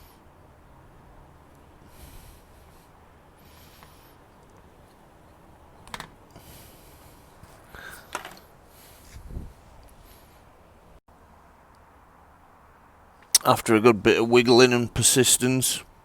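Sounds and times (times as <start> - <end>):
rustling: 1.9 - 10.7.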